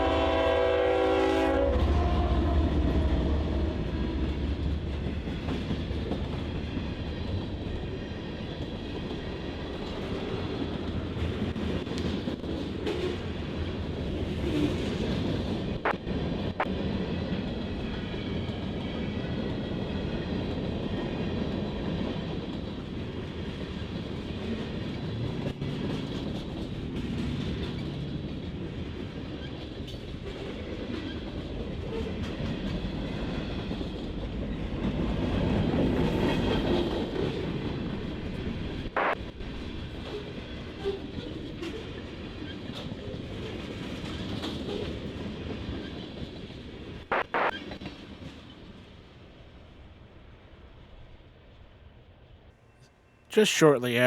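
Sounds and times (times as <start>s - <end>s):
freight train rolling on rails: 0.0s - 38.8s.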